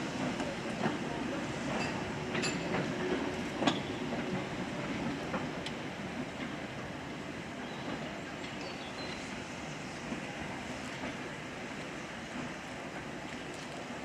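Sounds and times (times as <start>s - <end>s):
train rumbling on track: 0.0s - 14.0s
wheels clicking over rail joints: 1.7s - 4.5s.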